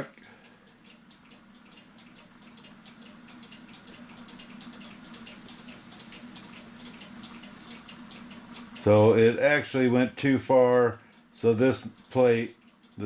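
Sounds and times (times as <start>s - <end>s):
clock movement clicking: 0.7s - 10.8s.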